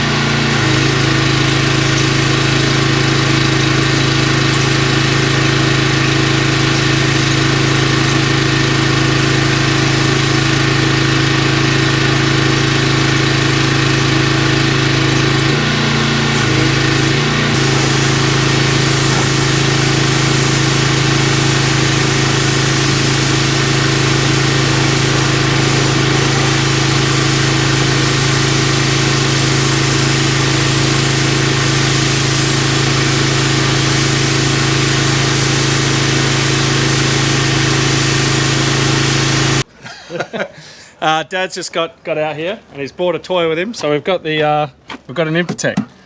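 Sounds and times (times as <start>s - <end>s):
engine running steadily: 0.0s - 39.7s
steady hiss: 16.4s - 32.6s.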